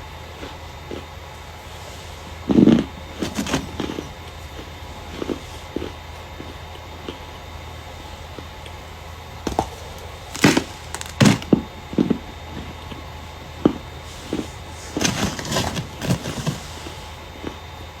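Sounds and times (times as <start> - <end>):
starch crunching and squeaking: 9.5 - 11.6.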